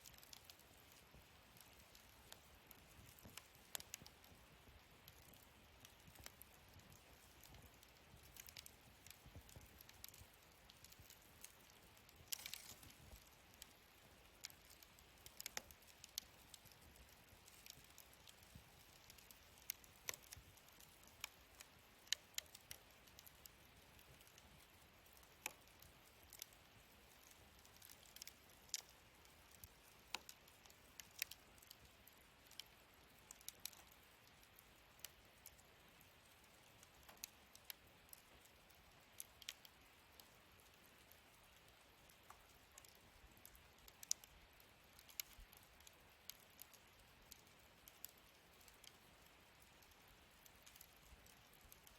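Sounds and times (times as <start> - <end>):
faint steady hiss: 0.0 - 51.9
wood fire crackling: 0.0 - 51.9.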